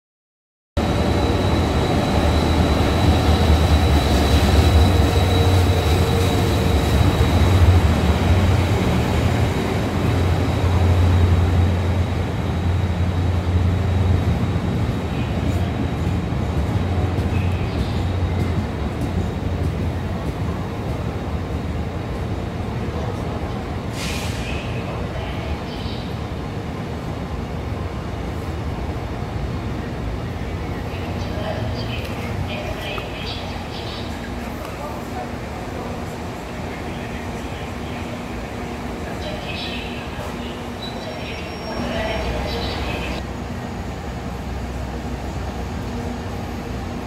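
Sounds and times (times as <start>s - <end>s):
locomotive engine drone: 0.8s - 23.4s
train cars rumbling on rails: 0.8s - 47.0s.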